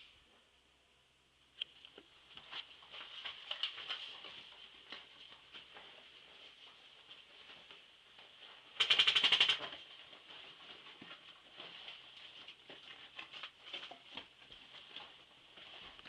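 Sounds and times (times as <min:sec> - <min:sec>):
faint rustling and clicks: 0:01.5 - 0:16.0
airsoft gun burst: 0:08.8 - 0:09.6.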